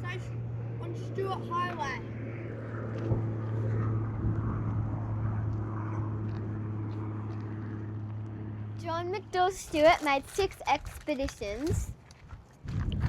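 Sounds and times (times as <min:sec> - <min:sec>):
vehicle engine hum and road noise: 0:00.0 - 0:13.0.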